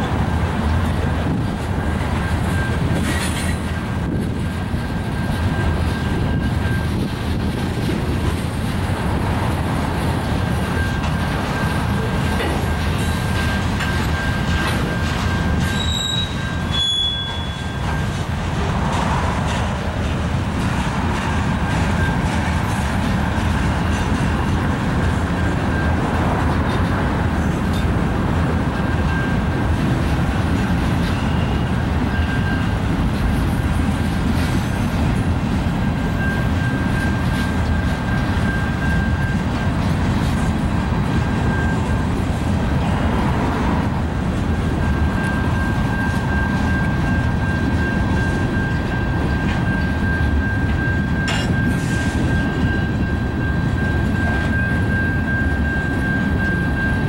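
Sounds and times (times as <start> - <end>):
train cars rumbling on rails: 0.0 - 57.0
high wheel squeal: 10.6 - 18.2, 30.9 - 32.8, 44.8 - 57.0.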